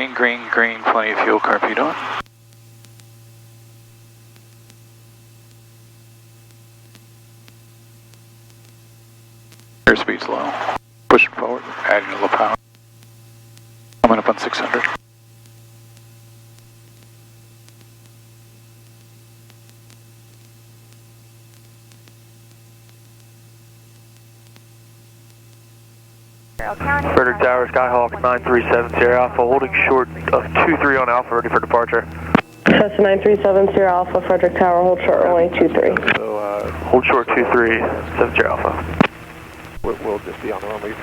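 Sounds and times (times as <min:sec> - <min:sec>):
intercom line hum and hiss: 0:00.0 - 0:41.0
faint clicks: 0:02.2 - 0:03.1, 0:36.0 - 0:37.0.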